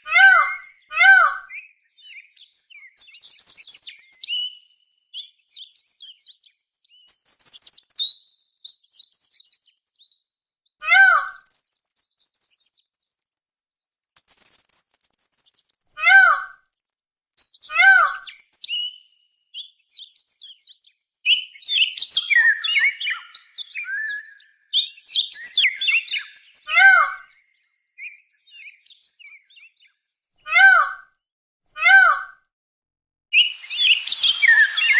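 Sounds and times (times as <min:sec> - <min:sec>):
birds chirping and twittering: 0:00.0 - 0:30.9, 0:33.4 - 0:34.9
sharp bird call: 0:10.8 - 0:11.5, 0:33.4 - 0:34.9.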